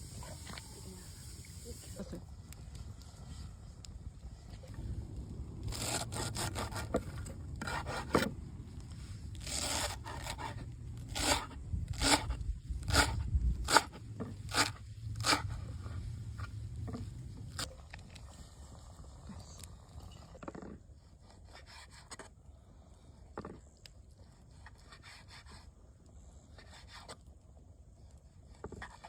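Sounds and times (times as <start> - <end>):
rubbing and scraping: 5.7 - 19.2.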